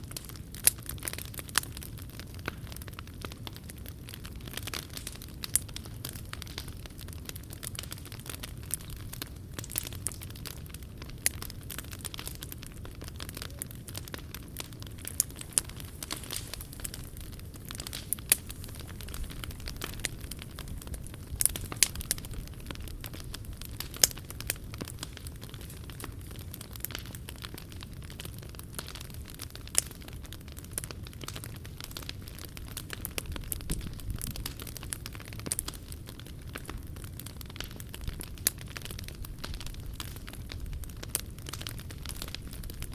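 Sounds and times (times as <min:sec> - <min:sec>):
wood fire crackling and popping: 0:00.0 - 0:42.9
low steady rumble: 0:10.1 - 0:26.5.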